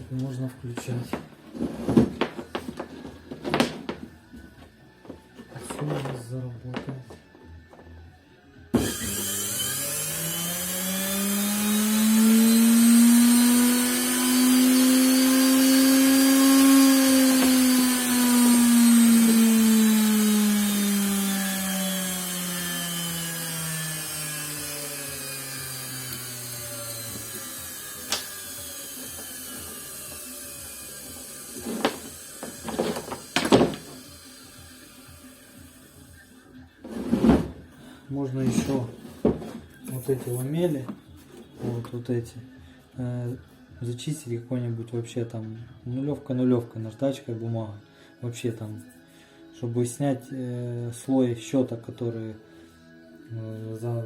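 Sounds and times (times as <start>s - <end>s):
electric motor whine: 8.7s - 36.5s.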